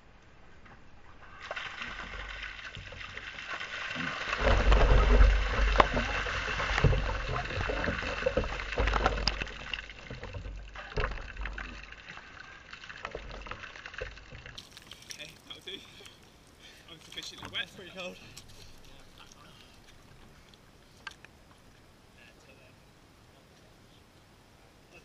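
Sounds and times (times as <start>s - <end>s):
water gushing and splashing: 1.2s - 20.4s
water trickling and dripping: 1.4s - 21.9s.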